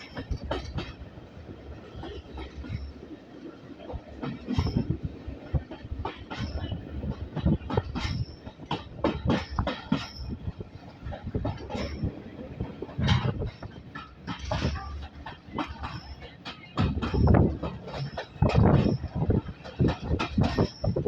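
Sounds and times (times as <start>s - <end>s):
railway carriage rumbling: 0.0s - 21.0s
wheels clattering over track: 11.0s - 21.0s.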